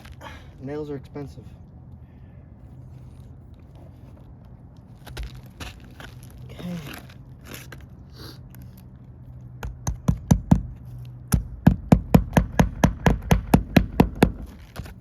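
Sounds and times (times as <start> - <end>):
hammer hitting nail: 9.6 - 10.7, 11.3 - 14.6.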